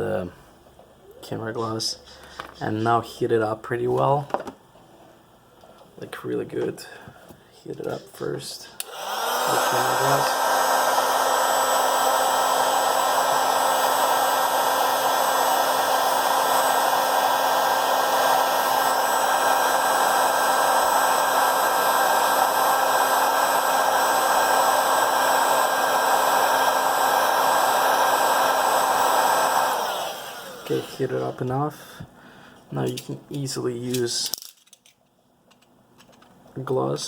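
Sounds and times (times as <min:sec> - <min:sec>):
hot-air blower running: 0:07.7 - 0:32.4.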